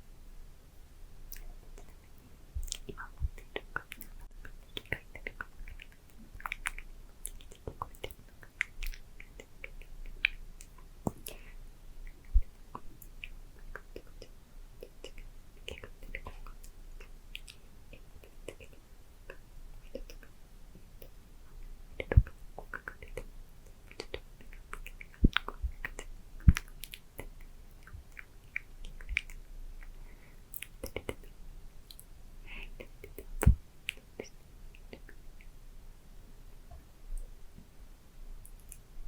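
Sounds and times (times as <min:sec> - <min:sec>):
tongue and lip clicks: 0:01.3 - 0:35.6, 0:38.4 - 0:39.0
faint whispering: 0:32.4 - 0:33.3.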